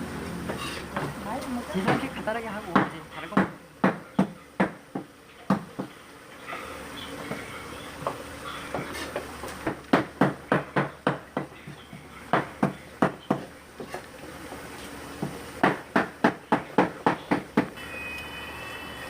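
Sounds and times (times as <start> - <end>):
knife chopping on wooden board: 8.8 - 11.5, 15.2 - 17.7.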